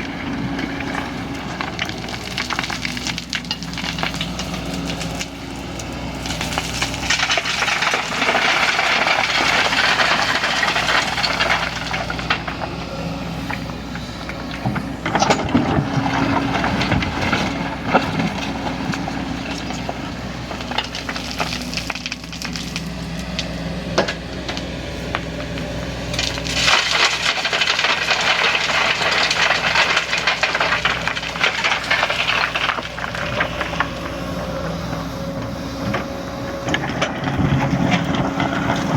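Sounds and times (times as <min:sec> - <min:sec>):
excavator diesel engine running: 0:00.0 - 0:38.9
crackling clattering noise: 0:26.2 - 0:34.0.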